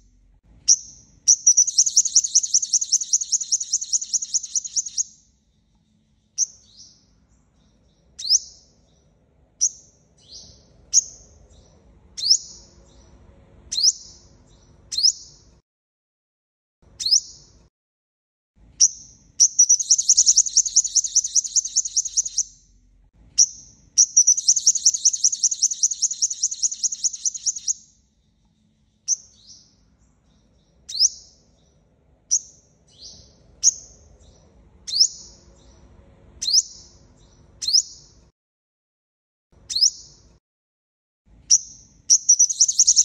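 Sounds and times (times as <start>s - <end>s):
sunbird high trills: 1.3s - 5.1s, 19.5s - 22.6s, 24.0s - 27.8s, 42.1s - 43.0s.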